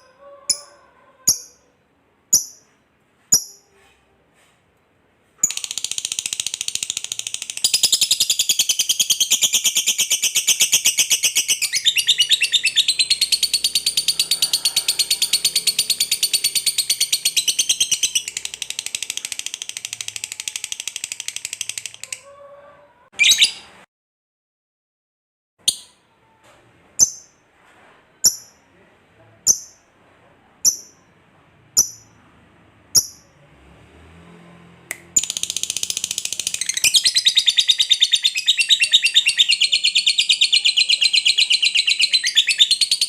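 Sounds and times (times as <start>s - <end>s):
lovebird chattering trill: 5.4s - 22.2s, 30.6s - 31.0s, 31.8s - 32.1s, 35.2s - 43.0s.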